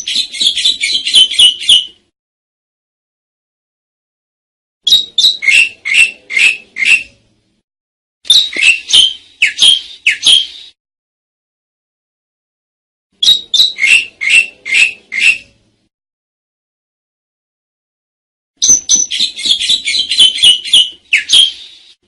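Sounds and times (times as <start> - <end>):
starling calling harsh notes: 0.0 - 2.0, 4.9 - 7.2, 8.3 - 10.8, 13.2 - 15.5, 18.6 - 22.0.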